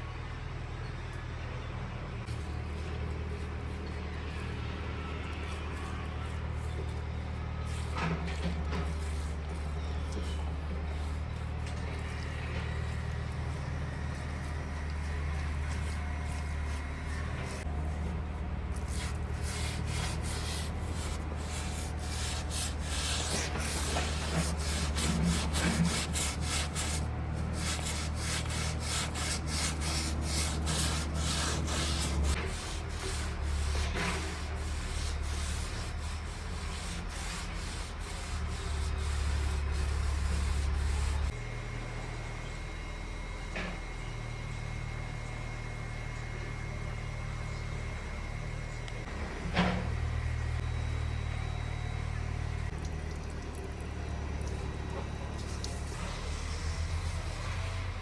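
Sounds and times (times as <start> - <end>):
steady low hum: 8.8 - 58.0
rhythmic scrubbing strokes: 19.0 - 41.3.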